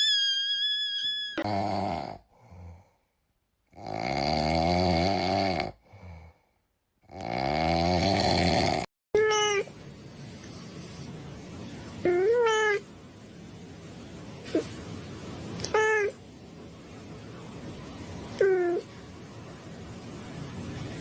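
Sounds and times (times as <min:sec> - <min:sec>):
cat snoring: 0:01.4 - 0:02.9, 0:03.7 - 0:06.4, 0:07.0 - 0:08.9
cat meowing: 0:09.2 - 0:09.7, 0:15.6 - 0:16.2.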